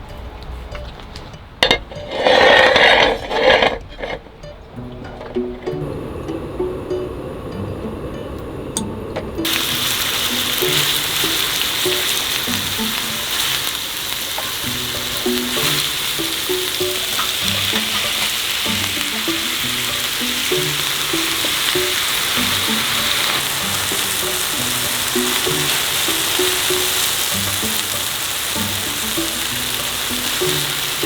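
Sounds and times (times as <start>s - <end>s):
background music: 0.0s - 31.0s
food sizzling in a pan: 8.8s - 31.0s.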